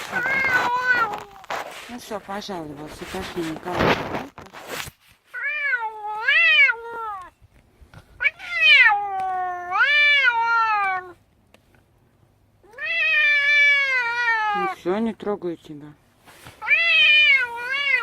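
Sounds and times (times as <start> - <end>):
cat meowing: 0.0 - 1.5, 5.4 - 7.4, 8.2 - 11.2, 12.6 - 14.9, 16.6 - 18.0.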